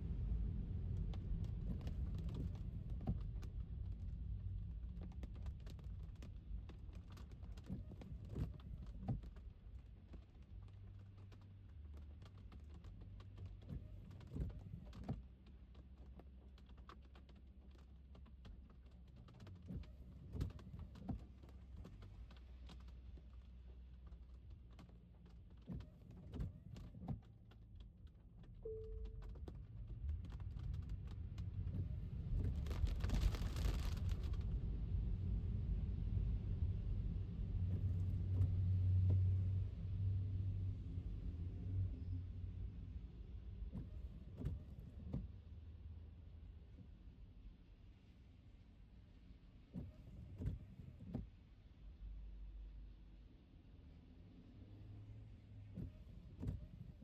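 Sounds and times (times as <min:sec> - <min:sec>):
low road rumble: 0:00.0 - 0:47.4
raindrops tapping on car: 0:00.2 - 0:36.8, 0:37.5 - 0:39.5.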